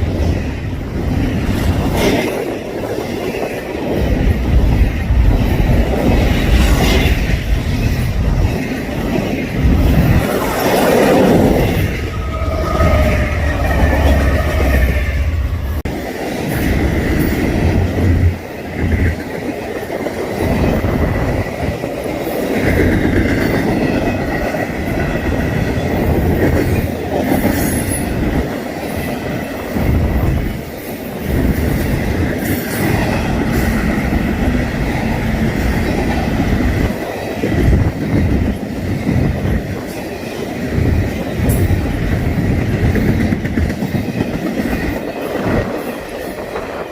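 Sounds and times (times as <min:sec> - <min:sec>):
freight train cars rumbling: 0:00.0 - 0:46.9
high wheel squeal on rail: 0:10.2 - 0:15.9.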